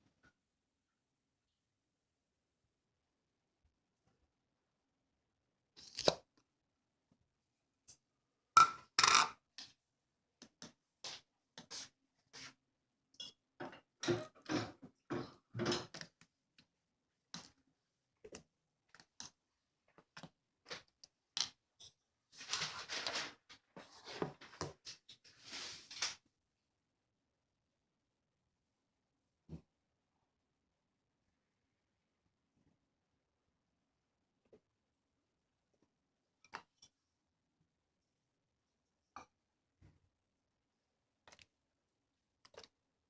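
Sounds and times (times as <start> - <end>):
small objects clicking and tapping: 18.2 - 22.0
rustling of small objects: 22.3 - 26.2.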